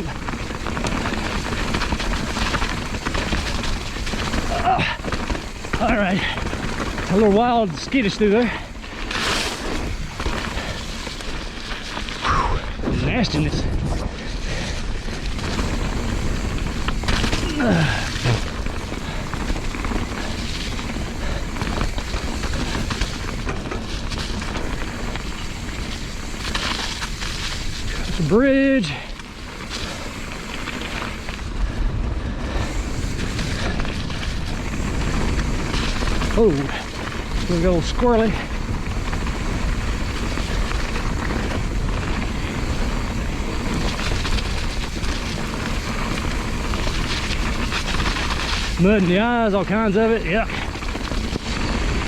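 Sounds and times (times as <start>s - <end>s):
bike rattling and knocking: 0.0s - 12.2s, 12.8s - 52.0s
bike tyre noise: 0.0s - 52.0s
wind buffeting microphone: 30.1s - 52.0s.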